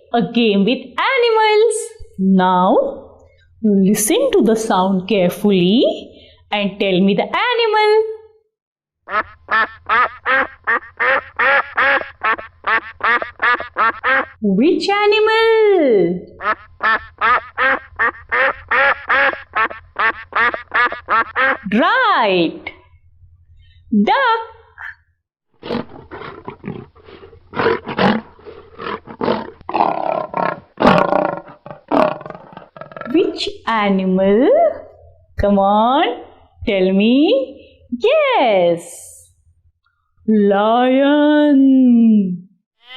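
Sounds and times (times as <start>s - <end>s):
duck quacking: 9.1s - 14.4s, 16.4s - 21.7s
lion roaring: 25.6s - 33.1s.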